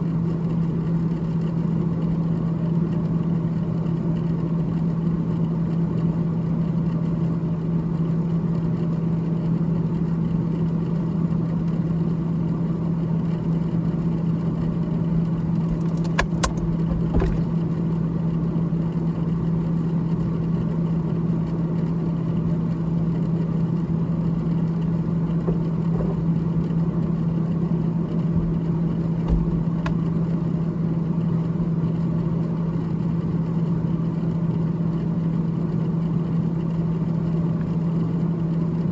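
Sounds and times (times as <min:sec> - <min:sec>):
freezer fan humming: 0:13.3 - 0:32.9.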